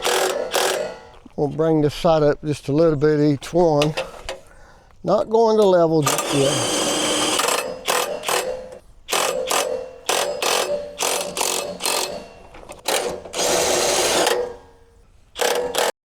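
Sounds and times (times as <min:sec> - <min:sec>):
power drill bursts: 0:00.0 - 0:01.2, 0:06.0 - 0:16.0.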